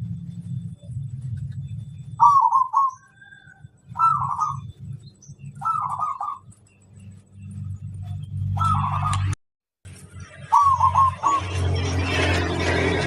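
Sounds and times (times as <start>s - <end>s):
low background hum: 0.0s - 13.0s
dove cooing: 2.2s - 4.7s, 5.5s - 6.5s, 8.5s - 9.3s, 10.5s - 11.5s.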